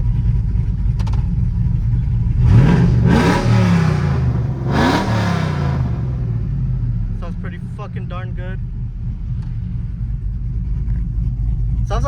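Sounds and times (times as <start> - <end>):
truck engine revving: 2.3 - 6.7.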